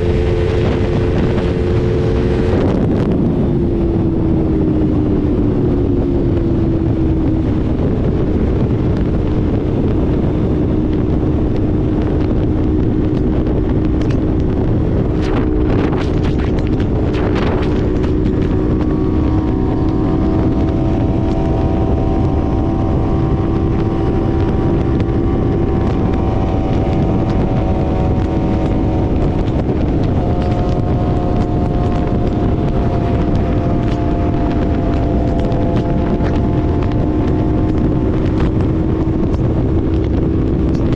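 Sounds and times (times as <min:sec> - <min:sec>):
motorcycle engine cruising: 0:00.0 - 0:40.9
wind rush on microphone: 0:00.0 - 0:40.9
higher steady tone: 0:09.4 - 0:40.6.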